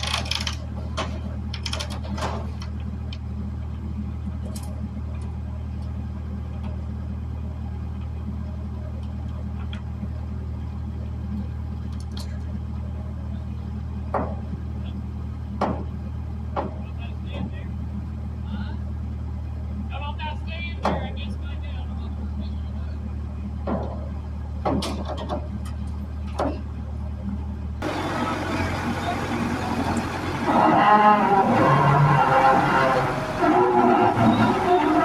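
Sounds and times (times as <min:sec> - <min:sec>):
low mechanical hum: 0:00.0 - 0:35.0
short knocks and clanks: 0:14.1 - 0:14.6, 0:15.6 - 0:17.6, 0:23.6 - 0:26.7.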